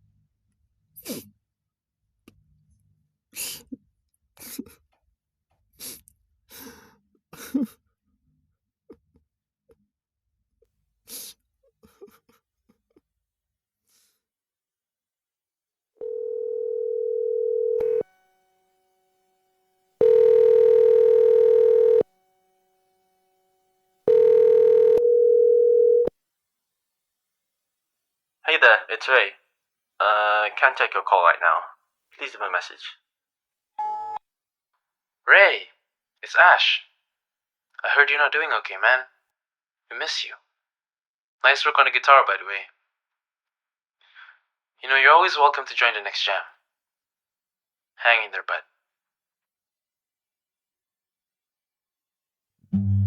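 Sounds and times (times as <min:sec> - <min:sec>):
breathy human sounds: 0:05.8 - 0:07.8
phone ringback tone: 0:16.0 - 0:18.1, 0:20.0 - 0:22.1, 0:24.1 - 0:26.1, 0:33.8 - 0:34.2, 0:52.8 - 0:53.0.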